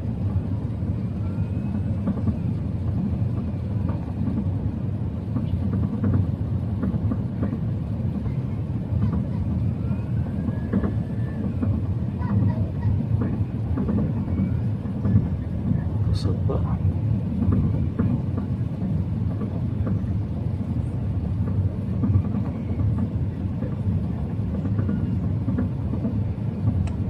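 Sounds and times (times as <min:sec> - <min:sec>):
airplane cabin rumble: 0:00.0 - 0:27.0.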